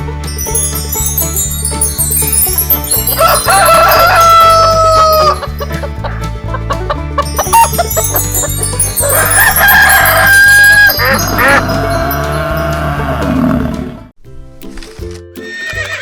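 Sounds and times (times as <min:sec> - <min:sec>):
background music with low beat: 0:00.0 - 0:15.5
rooster crowing: 0:03.1 - 0:12.9.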